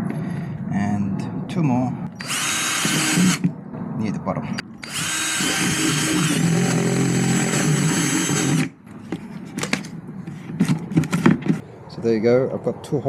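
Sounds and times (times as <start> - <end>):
power drill boring through plastic: 2.2 - 3.5, 4.8 - 8.8.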